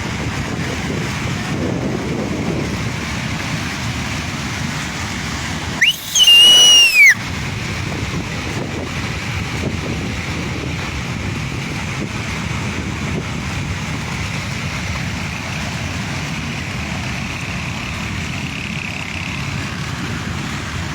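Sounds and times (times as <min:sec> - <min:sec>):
high whistle-like tone: 0:05.8 - 0:07.2.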